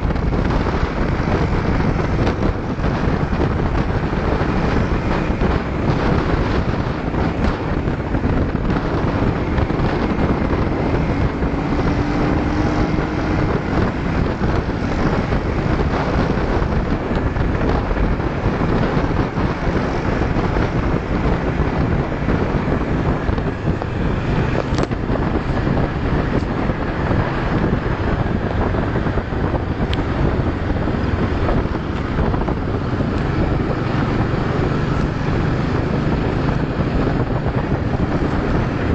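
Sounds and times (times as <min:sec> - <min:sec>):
motor scooter engines: 0:00.0 - 0:38.9
wind noise on microphone: 0:00.0 - 0:38.9.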